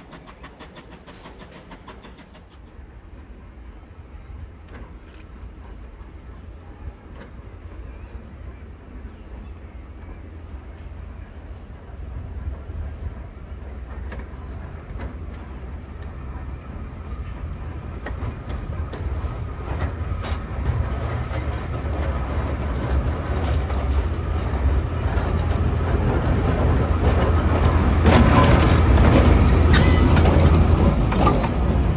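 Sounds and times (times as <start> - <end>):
train rumble: 0.0 - 31.9
wheels clicking on rail: 13.9 - 31.9.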